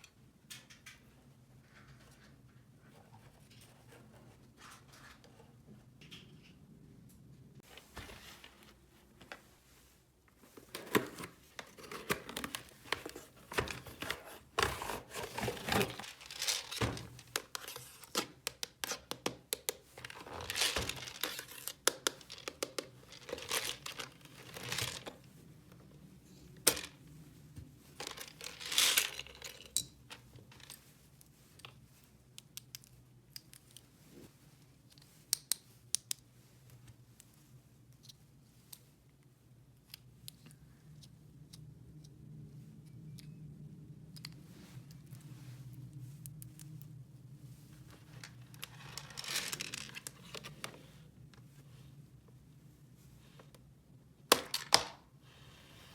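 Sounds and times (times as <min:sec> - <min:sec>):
crinkling and tearing rustles: 0:10.4 - 0:18.2, 0:20.0 - 0:22.5, 0:23.1 - 0:25.2.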